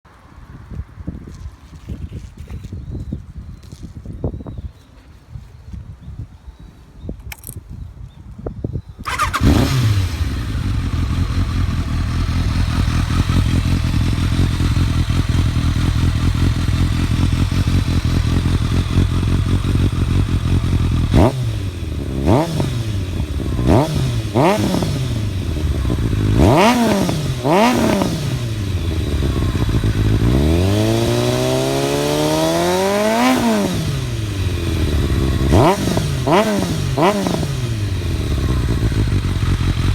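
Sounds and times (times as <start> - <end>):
motorcycle engine idling and revving: 9.0 - 39.9.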